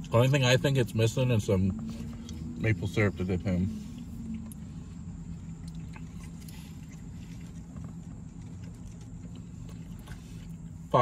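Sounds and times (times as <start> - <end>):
car cabin hum: 0.0 - 11.0
man chewing with mouth clicks: 3.9 - 10.9.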